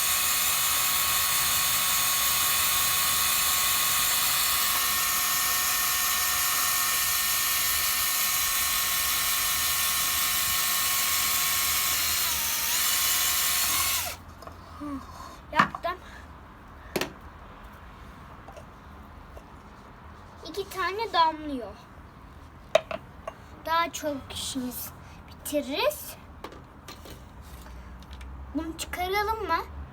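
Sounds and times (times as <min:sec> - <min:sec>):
electric drill whining: 0:00.0 - 0:14.2.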